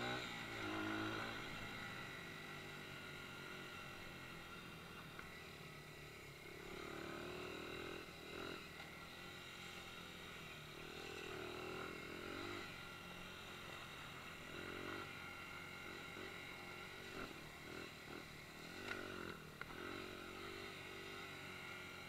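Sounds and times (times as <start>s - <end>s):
dirt bike engine revving: 0.0s - 5.5s, 6.3s - 22.0s.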